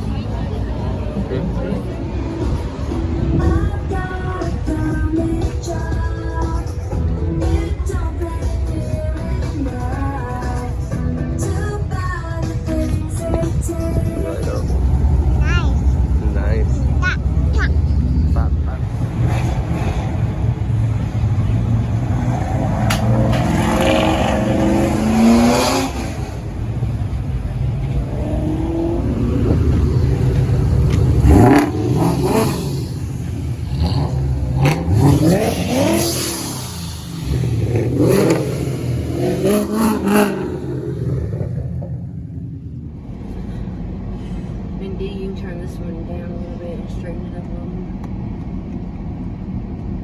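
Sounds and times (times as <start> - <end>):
car engine revving: 13.4 - 50.0.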